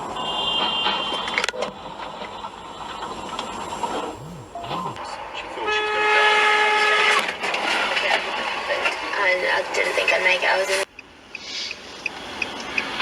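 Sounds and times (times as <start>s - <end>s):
traffic and road noise: 0.0s - 13.0s
car horn honking: 0.2s - 1.4s, 4.2s - 7.4s.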